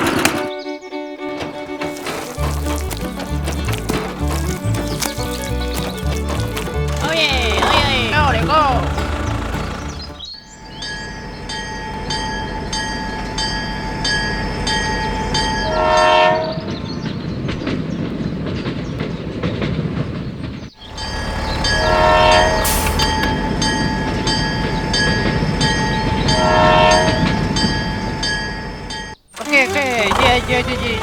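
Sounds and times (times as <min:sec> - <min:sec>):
mechanical rumbling: 0:01.2 - 0:10.4, 0:20.8 - 0:23.8, 0:29.4 - 0:31.0
regular ticking: 0:01.4 - 0:10.4, 0:29.3 - 0:31.0.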